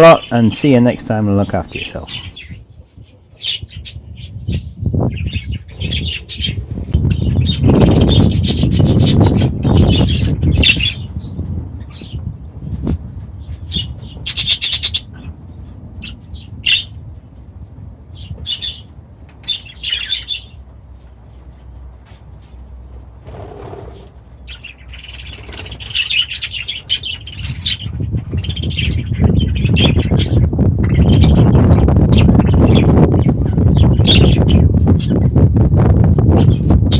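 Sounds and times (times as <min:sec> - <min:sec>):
cockatiels chirping and calling: 0:13.5 - 0:15.4, 0:18.2 - 0:20.6, 0:23.7 - 0:35.3
wing flapping: 0:23.2 - 0:24.2.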